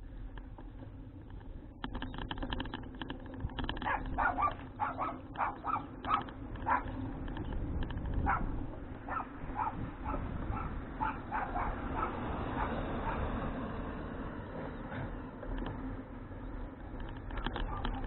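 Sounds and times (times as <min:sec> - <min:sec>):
dog barking: 0:03.8 - 0:07.0, 0:08.2 - 0:13.4, 0:17.3 - 0:18.0.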